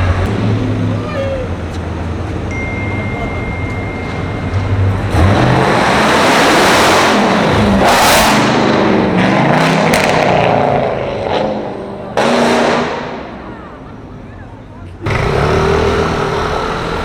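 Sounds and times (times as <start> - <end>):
traffic noise: 0.0 - 17.0
car engine revving: 4.9 - 13.4, 15.0 - 17.0.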